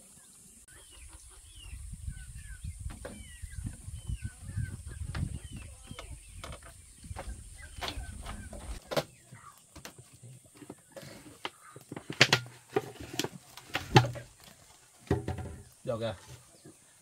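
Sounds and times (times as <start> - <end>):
birds chirping: 0.0 - 12.7.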